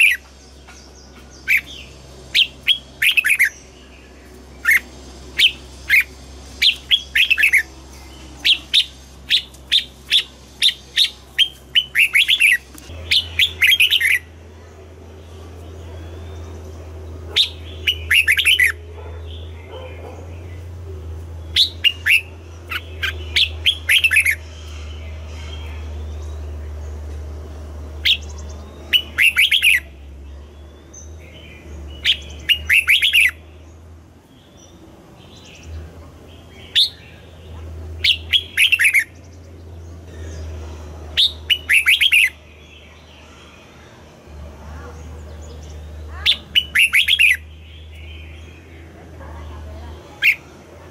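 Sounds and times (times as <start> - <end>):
bird singing whistled phrases: 17.4 - 18.8, 28.8 - 30.0, 32.0 - 33.4, 41.2 - 42.4, 46.2 - 48.3.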